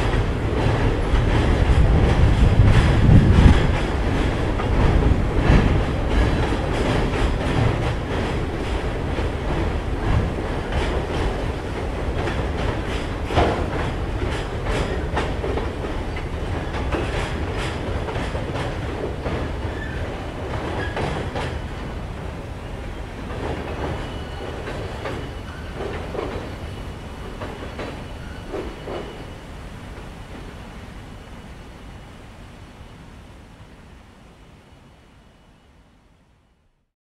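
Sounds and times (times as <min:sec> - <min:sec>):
train wheels clicking and knocking: 0:00.0 - 0:22.0, 0:23.2 - 0:29.3
low train rumble: 0:00.0 - 0:36.9.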